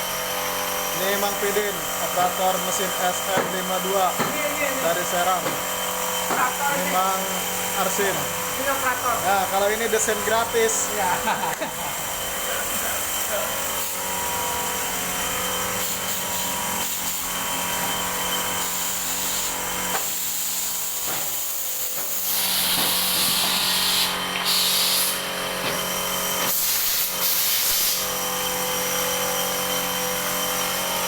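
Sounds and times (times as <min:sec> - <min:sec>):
printing machinery running: 0:00.0 - 0:26.6
loud hiss: 0:22.1 - 0:25.2, 0:26.5 - 0:28.1.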